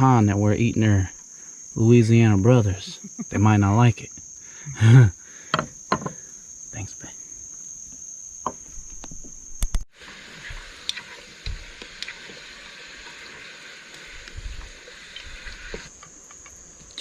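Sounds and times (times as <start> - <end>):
crickets trilling: 0.0 - 17.0
food sizzling in a frying pan: 9.9 - 15.9.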